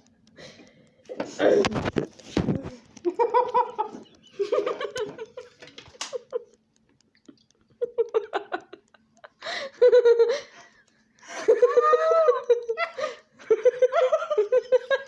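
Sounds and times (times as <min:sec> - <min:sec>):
high-pitched giggling: 0:02.6 - 0:06.6, 0:07.3 - 0:10.7, 0:11.3 - 0:15.0.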